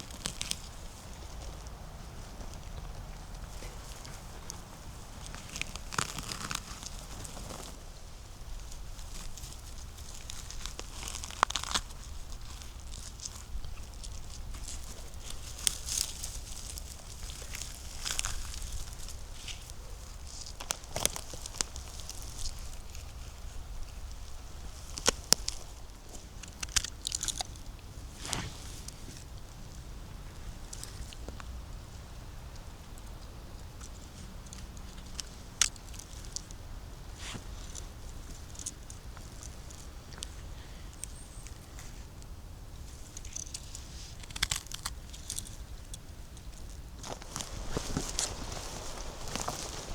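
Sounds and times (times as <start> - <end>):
twigs snapping: 0.0 - 7.8, 8.6 - 29.4, 33.8 - 36.6, 43.1 - 49.9
dry leaves crunching underfoot: 0.0 - 29.2, 46.4 - 49.9.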